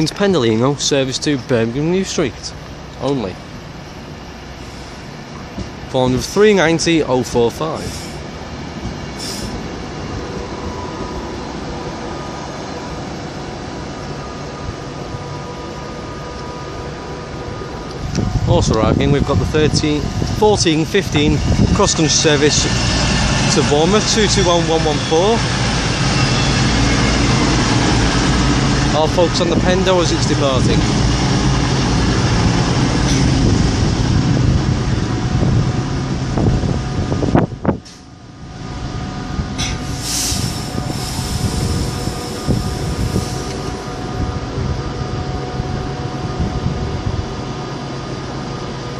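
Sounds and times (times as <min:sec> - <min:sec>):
train rail rumble: 0:00.0 - 0:48.9.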